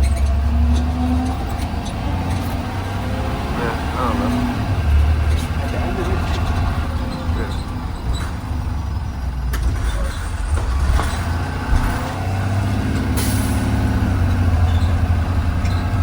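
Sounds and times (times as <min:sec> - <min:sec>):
bus engine rumble: 0:00.0 - 0:16.0.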